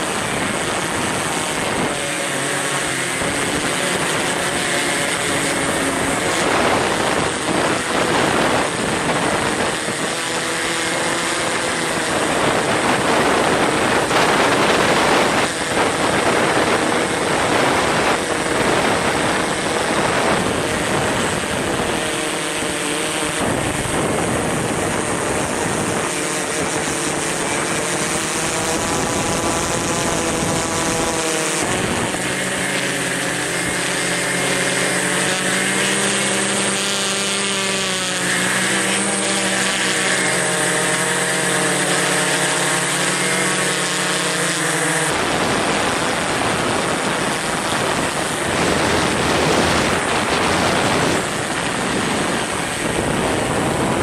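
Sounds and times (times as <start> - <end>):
machine hum: 0.0 - 54.0
strong wind on microphone: 0.0 - 54.0.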